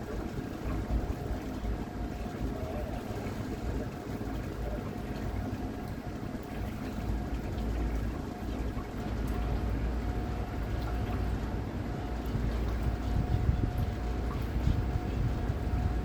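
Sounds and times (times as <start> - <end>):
thin steady whine: 0.0 - 16.0
water splashing against boat hull: 0.1 - 16.0
wind buffeting microphone: 9.6 - 16.0.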